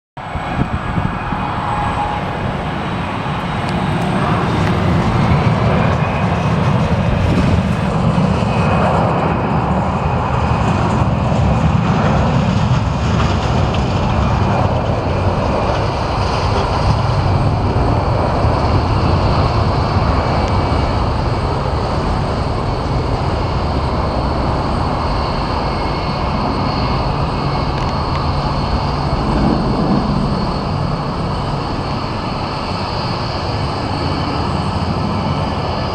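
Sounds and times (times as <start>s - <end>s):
fan whine: 0.2s - 6.2s
jet engines roaring: 0.2s - 35.9s.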